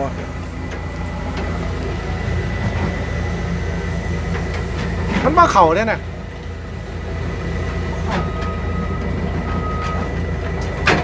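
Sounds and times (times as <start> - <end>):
truck diesel engine running: 0.0 - 11.0.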